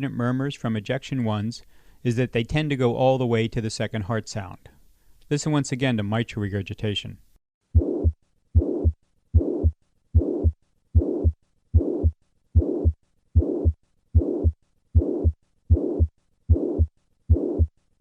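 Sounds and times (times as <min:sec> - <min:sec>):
heart murmur: 0:07.8 - 0:17.7
heartbeat through stethoscope: 0:07.8 - 0:17.8.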